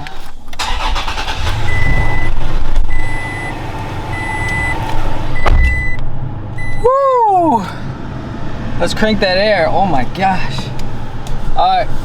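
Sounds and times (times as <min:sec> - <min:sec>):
car engine running: 0:00.5 - 0:12.0
car warning chime beeping: 0:00.8 - 0:06.0, 0:06.6 - 0:06.9
thump: 0:05.4 - 0:05.9.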